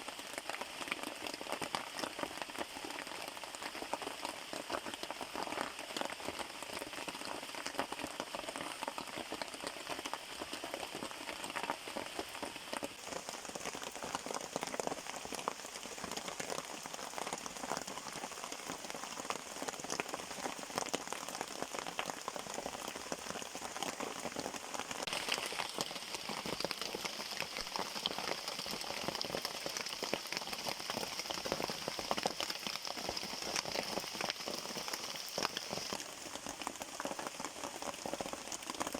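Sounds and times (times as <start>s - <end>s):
rain patter: 0.0s - 38.9s.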